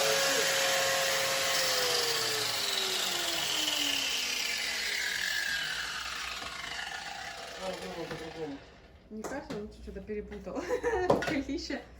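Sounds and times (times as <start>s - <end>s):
electric motor whine spinning down: 0.0s - 8.7s.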